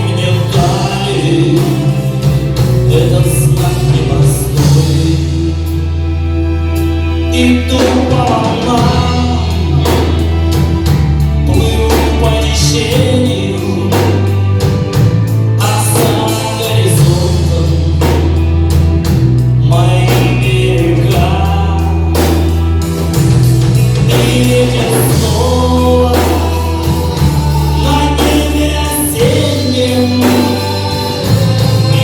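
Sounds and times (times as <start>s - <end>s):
people singing: 0.0s - 5.8s, 7.3s - 15.0s, 15.6s - 18.8s, 19.6s - 32.0s
bass notes: 0.0s - 32.0s
rock band playing live: 0.0s - 32.0s
drum kit hits: 7.9s - 32.0s.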